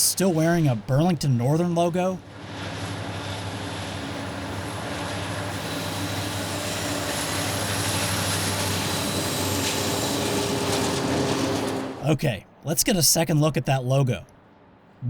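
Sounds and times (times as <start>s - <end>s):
locomotive diesel engine drone: 0.0s - 12.4s
train noise: 0.0s - 13.9s.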